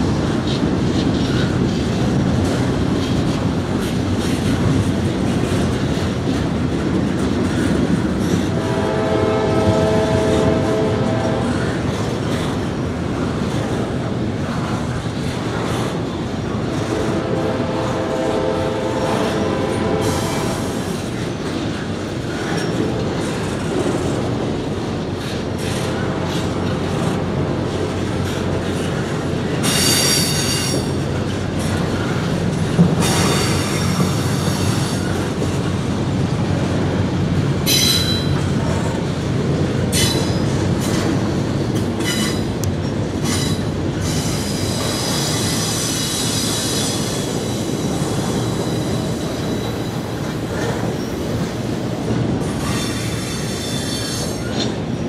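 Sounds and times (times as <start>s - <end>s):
freight train wheels rumbling: 0.0s - 55.0s
high wheel squeal: 43.3s - 50.2s, 52.6s - 54.7s.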